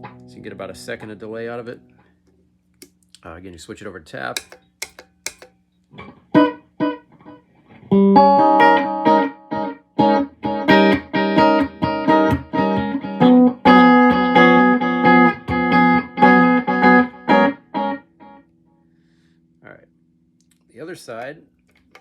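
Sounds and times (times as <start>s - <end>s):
electric guitar chords with delay: 7.8s - 18.4s.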